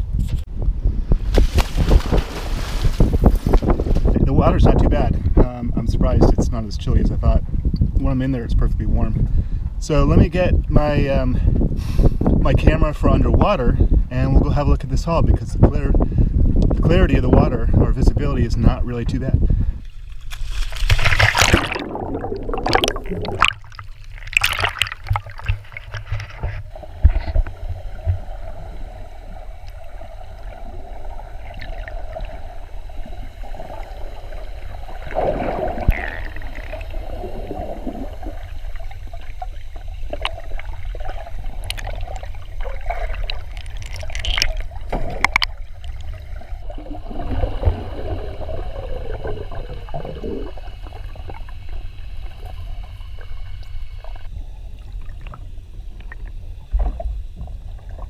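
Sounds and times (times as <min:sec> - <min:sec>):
low rumble: 0:00.0 - 0:58.0
water sloshing and gurgling: 0:01.0 - 0:08.0, 0:16.0 - 0:58.0
sharp splashes and knocks: 0:01.3 - 0:04.1, 0:20.1 - 0:27.3, 0:40.1 - 0:47.9.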